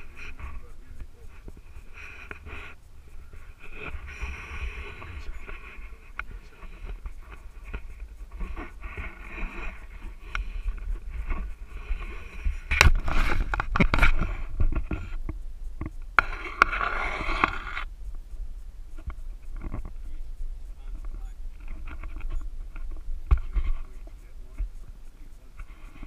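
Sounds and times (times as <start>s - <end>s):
knocks and scraping clatter: 0.0s - 17.9s.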